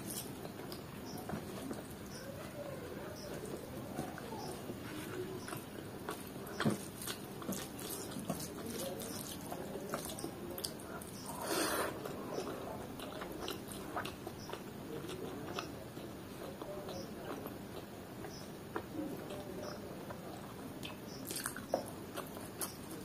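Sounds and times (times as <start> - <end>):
chewing with wet smacking clicks: 5.2 - 11.4, 12.0 - 23.0.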